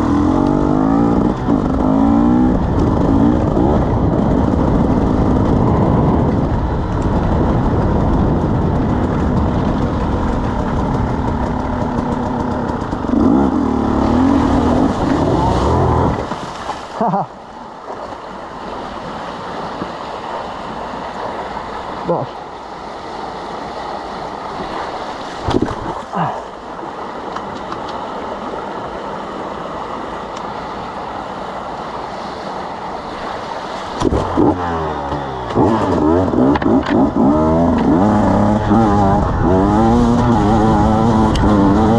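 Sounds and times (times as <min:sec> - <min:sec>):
two-stroke engine revving: 0:00.0 - 0:16.4, 0:34.0 - 0:41.9.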